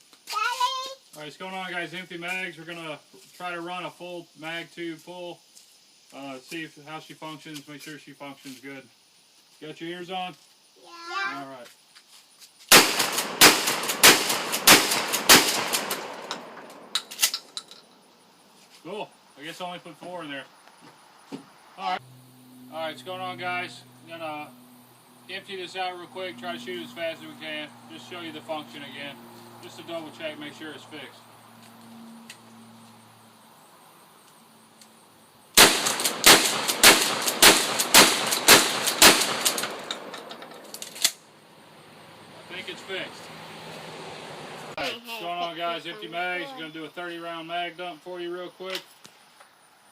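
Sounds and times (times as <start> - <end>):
shotgun shots: 12.7 - 17.2, 35.6 - 40.7.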